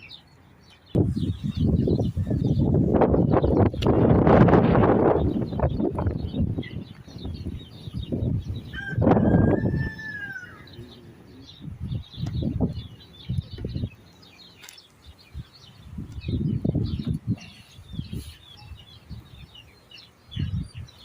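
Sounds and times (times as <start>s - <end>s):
small birds chirping: 0.0s - 21.0s
rooster crowing: 8.6s - 11.0s.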